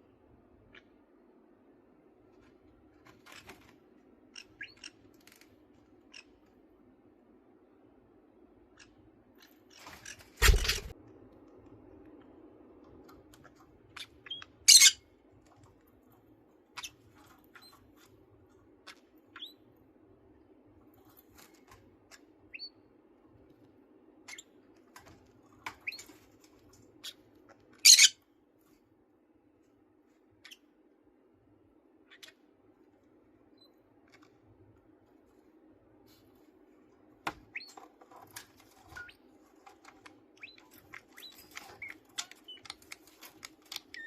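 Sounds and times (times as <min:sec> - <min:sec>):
faint steady hum: 0:00.0 - 0:44.0
parakeets chirping: 0:04.3 - 0:05.4, 0:13.9 - 0:15.0, 0:27.0 - 0:28.2, 0:32.0 - 0:32.4, 0:38.6 - 0:44.0.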